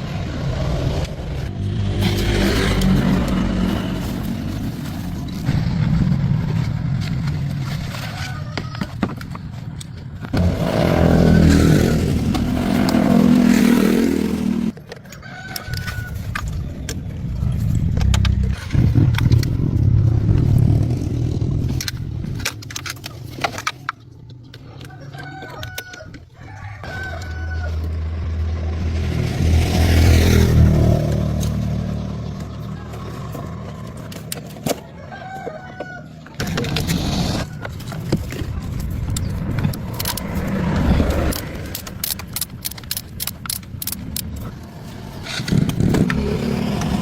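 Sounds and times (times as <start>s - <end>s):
car engine revving: 0.0s - 7.0s, 10.4s - 14.8s, 27.8s - 34.2s
rooster crowing: 24.9s - 28.2s, 34.8s - 36.4s.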